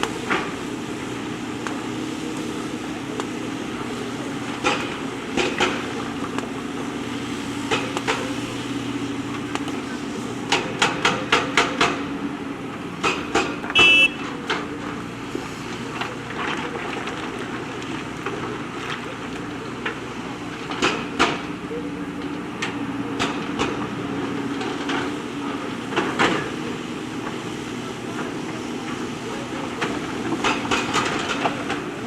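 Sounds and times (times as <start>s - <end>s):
diesel engine running: 0.0s - 32.0s
brief high tone: 13.8s - 14.3s.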